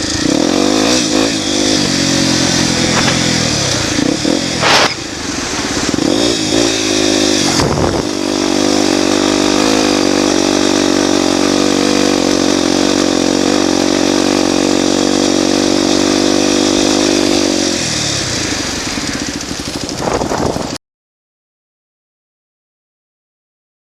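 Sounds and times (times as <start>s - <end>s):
motorcycle engine at high revs: 0.0s - 20.8s
engine knocking: 18.2s - 20.8s.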